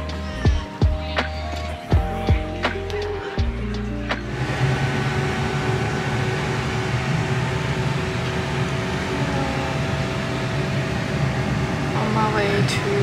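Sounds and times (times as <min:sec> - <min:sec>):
train carriage drone: 0:01.9 - 0:13.0
train rumble: 0:04.2 - 0:13.0.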